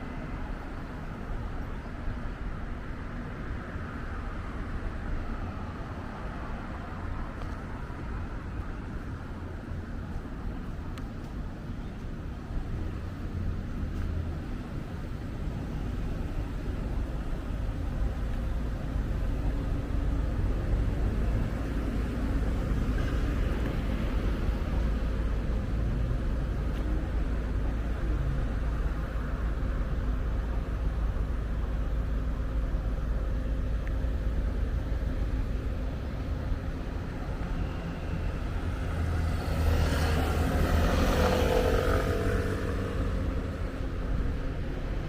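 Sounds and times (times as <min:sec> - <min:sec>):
low rumble of passing cars: 0:00.0 - 0:45.0
loud vehicle passing close: 0:38.7 - 0:43.8.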